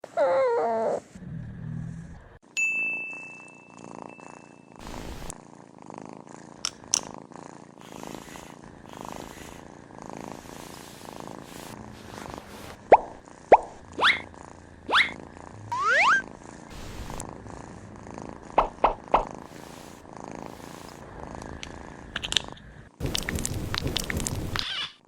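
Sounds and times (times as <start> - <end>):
bell-like ding: 2.6 - 4.7
cat purring: 3.8 - 24.6
wavering pitched call: 14.0 - 14.3, 14.9 - 16.3.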